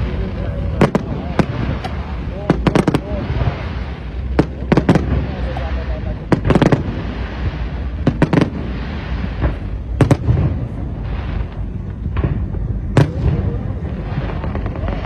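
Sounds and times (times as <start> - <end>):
fireworks bangs: 0.0 - 15.0
low rumble: 0.0 - 15.0.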